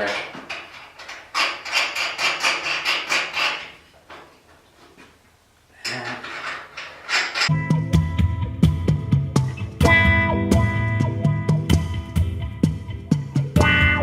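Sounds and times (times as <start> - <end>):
rattling: 0.0 - 3.9, 5.8 - 7.5
clicks and knocks: 0.0 - 5.2.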